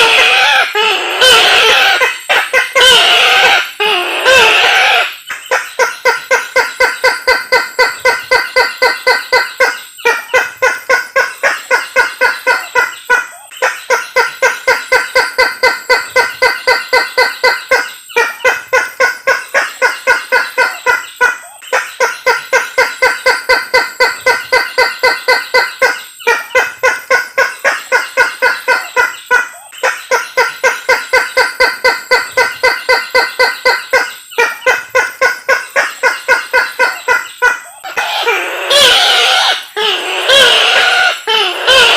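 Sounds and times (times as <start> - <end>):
rail bird harsh repeated calls: 0.0 - 41.9.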